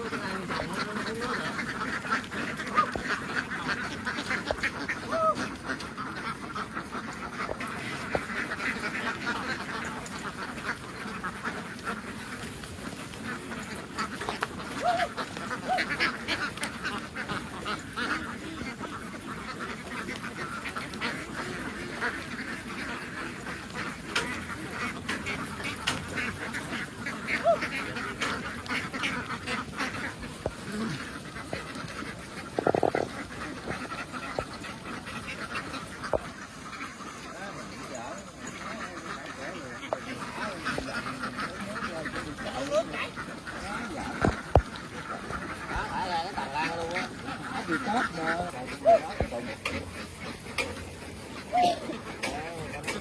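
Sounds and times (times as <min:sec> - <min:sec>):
ducks quacking: 0:00.0 - 0:53.0.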